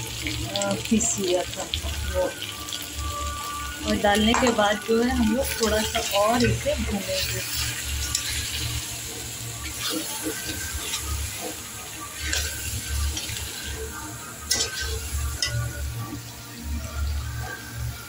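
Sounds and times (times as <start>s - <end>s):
food sizzling in oil: 0.0s - 18.0s
spatula scraping and knocking pan: 9.6s - 15.7s.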